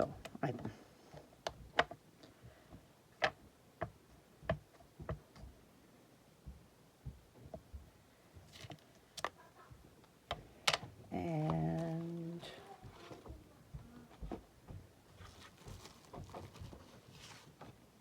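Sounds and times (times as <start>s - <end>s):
person humming or speaking: 11.1s - 14.2s
paper rustle: 15.2s - 17.8s.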